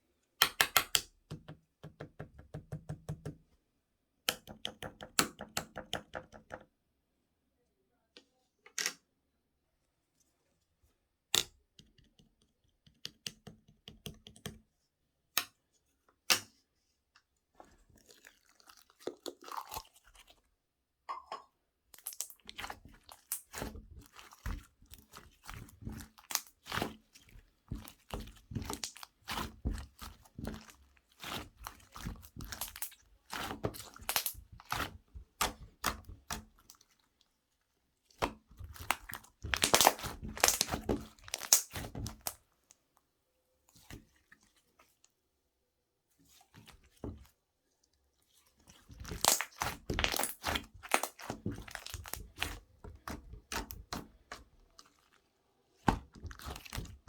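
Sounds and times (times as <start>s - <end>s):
slime squishing and crackling: 22.0s - 37.2s, 38.1s - 42.4s, 48.7s - 55.2s, 55.8s - 57.0s.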